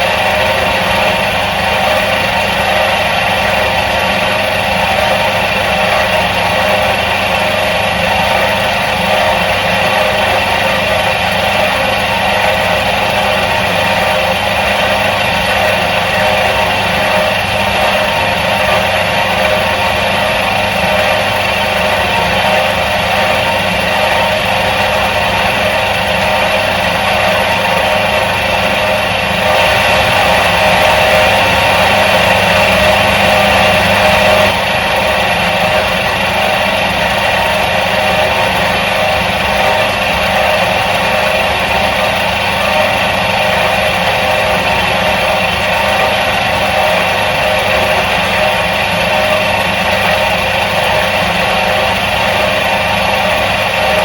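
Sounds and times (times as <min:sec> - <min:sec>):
washing machine motor humming: 0:00.0 - 0:54.0.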